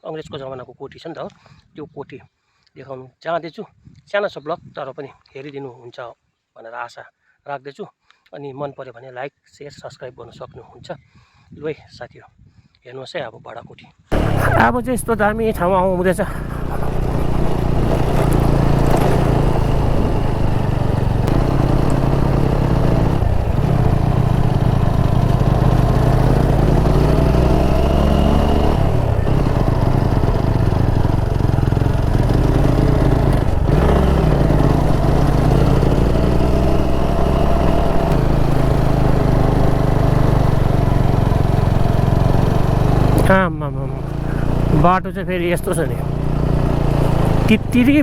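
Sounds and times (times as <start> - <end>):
motorcycle engine running: 14.1 - 48.0.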